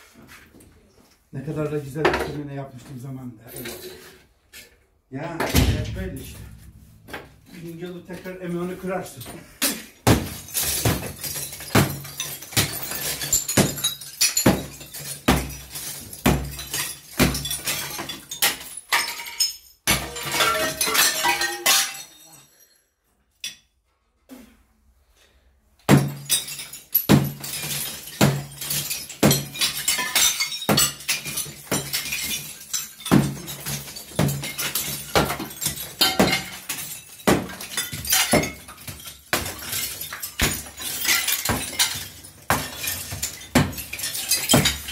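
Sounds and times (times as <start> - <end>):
debris crumbling and clattering: 5.4 - 22.7, 25.9 - 44.9.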